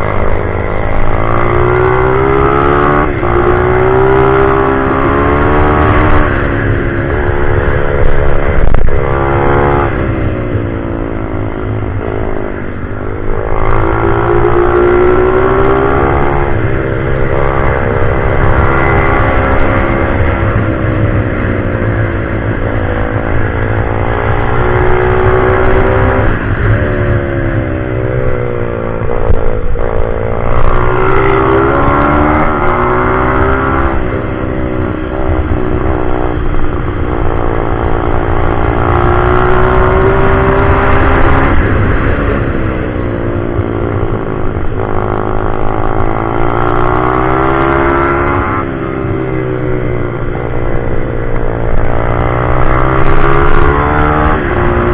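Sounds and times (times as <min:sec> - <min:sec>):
pit bike engine revving: 0:00.0 - 0:54.9.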